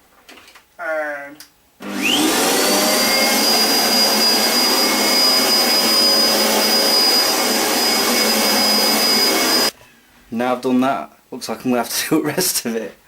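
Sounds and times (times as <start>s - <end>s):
vacuum cleaner running: 1.8s - 9.8s.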